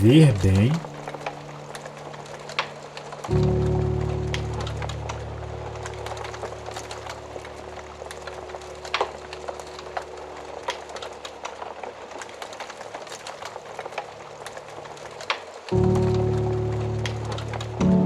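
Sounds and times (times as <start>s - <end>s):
soft background music: 0.0s - 12.2s, 14.3s - 18.0s
wood fire crackling: 4.3s - 17.8s
fire pops and snaps: 5.8s - 16.1s.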